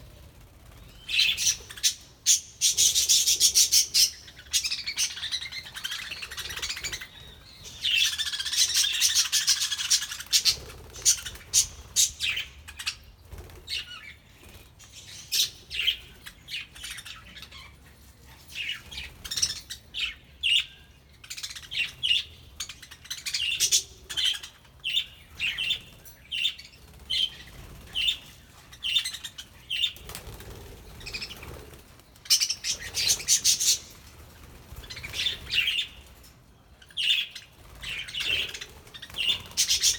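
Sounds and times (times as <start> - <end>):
wings flapping: 29.9 - 35.9, 37.5 - 39.9
budgerigars chirping: 37.0 - 39.9.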